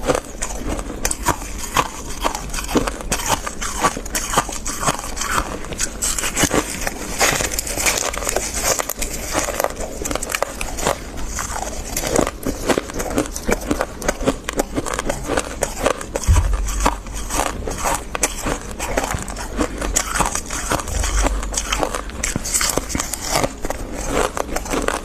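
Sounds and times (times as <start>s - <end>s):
chewing crispy frost: 0.0s - 25.0s
low thump: 16.3s - 17.5s.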